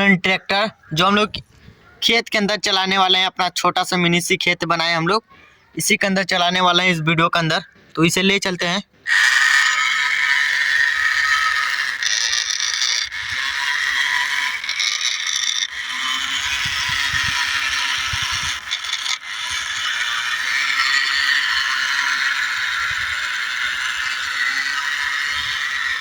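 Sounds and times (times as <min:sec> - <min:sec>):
toy tractor motor whining: 0:09.0 - 0:26.0
scraping and rattling: 0:11.2 - 0:26.0.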